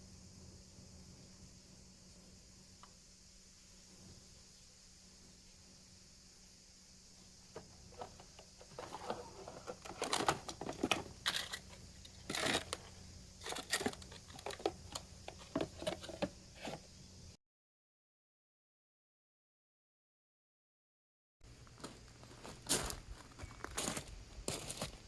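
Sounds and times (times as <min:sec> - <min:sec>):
faint steady hum: 0:00.0 - 0:17.4, 0:21.4 - 0:25.0
clicks taps and rustling: 0:07.5 - 0:16.8.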